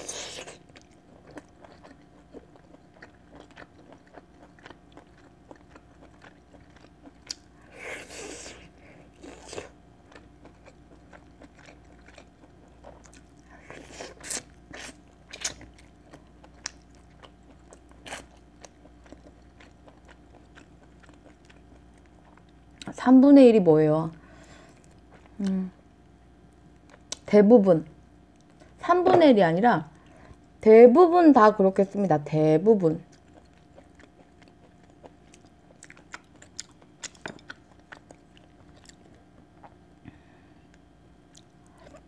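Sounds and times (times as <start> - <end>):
chewing chicken: 0.0 - 23.0, 33.0 - 42.0.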